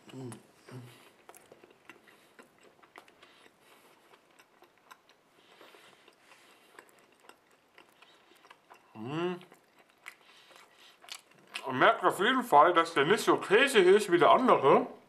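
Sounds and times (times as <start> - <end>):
person chewing food: 0.0 - 11.7.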